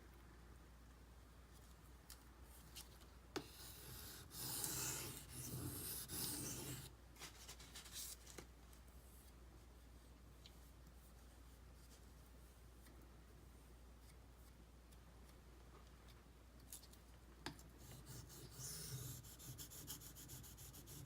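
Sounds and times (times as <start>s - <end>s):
knife scraping on whetstone: 3.8s - 6.9s.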